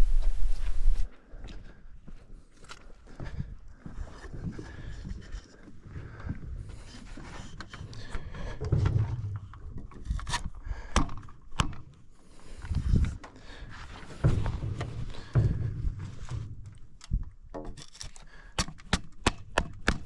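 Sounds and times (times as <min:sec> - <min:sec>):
dull low thumps: 0:00.0 - 0:01.1.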